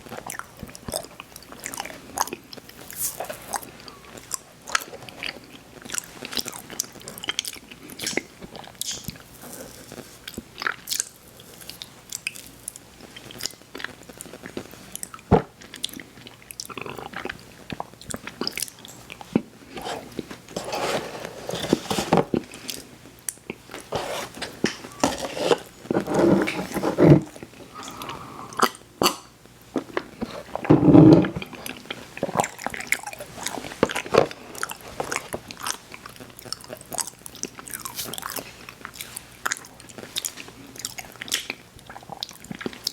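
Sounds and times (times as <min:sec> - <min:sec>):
chewing sweets: 0:00.1 - 0:12.5, 0:13.1 - 0:20.6, 0:31.3 - 0:42.9.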